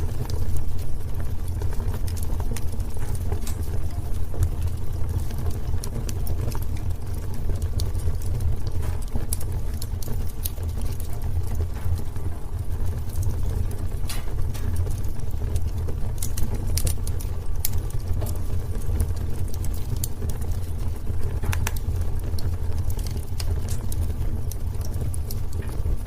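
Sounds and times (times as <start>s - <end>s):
low fire rumble: 0.0s - 26.0s
wood fire crackling: 0.0s - 26.0s.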